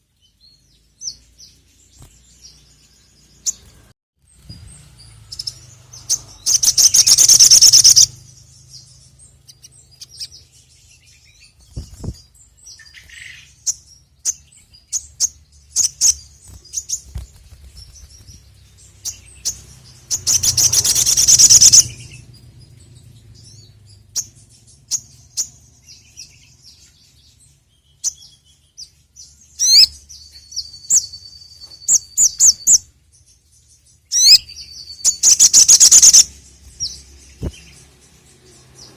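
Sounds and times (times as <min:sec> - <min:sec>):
sharp bird chirps: 0:00.0 - 0:38.9
high bird whistle: 0:06.4 - 0:08.1, 0:20.2 - 0:22.1, 0:34.2 - 0:37.6
sunbird rapid high trilling: 0:15.8 - 0:22.4.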